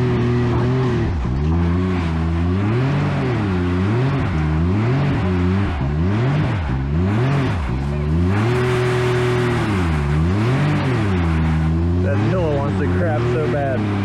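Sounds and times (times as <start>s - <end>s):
engine revving: 0.0s - 14.0s.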